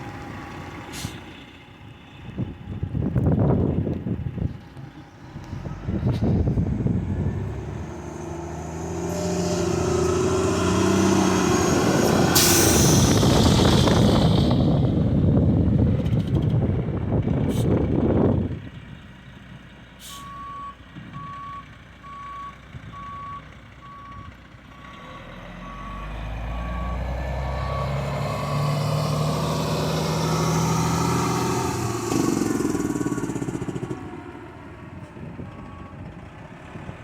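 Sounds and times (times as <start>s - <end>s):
diesel engine: 0.0s - 37.0s
broad rushing noise: 7.3s - 16.2s.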